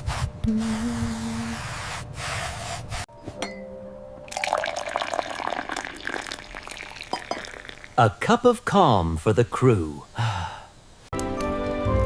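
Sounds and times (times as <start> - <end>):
water pouring and dripping: 4.3 - 8.0.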